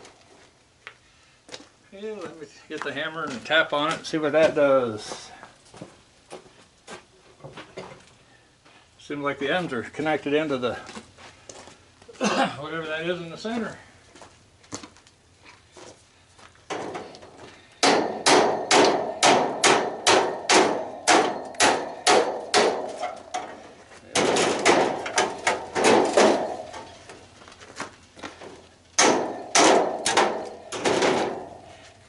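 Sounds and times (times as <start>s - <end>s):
hammer striking metal: 17.8s - 23.5s, 24.2s - 26.9s, 29.0s - 31.7s.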